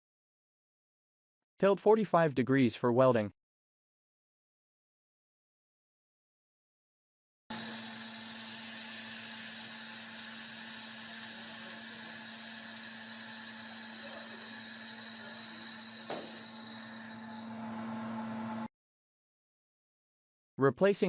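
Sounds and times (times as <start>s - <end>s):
laser welding machine humming: 7.5s - 18.7s.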